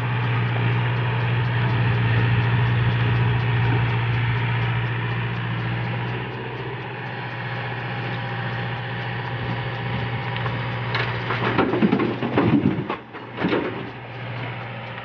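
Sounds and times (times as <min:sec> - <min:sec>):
backhoe engine running: 0:00.0 - 0:15.0
loud crunching and clattering: 0:10.4 - 0:14.5.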